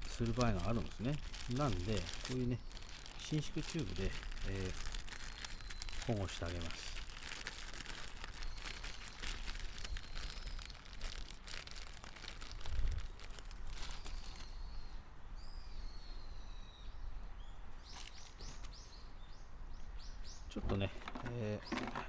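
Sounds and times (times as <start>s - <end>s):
rustling of parts handled: 0.0s - 14.4s, 20.7s - 22.0s
birds chirping: 0.0s - 22.0s.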